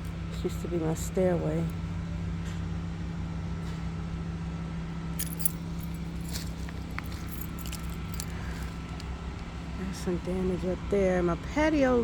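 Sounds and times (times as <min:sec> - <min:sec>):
low motor hum: 0:00.0 - 0:12.0
light clicks and jingles: 0:05.2 - 0:09.1.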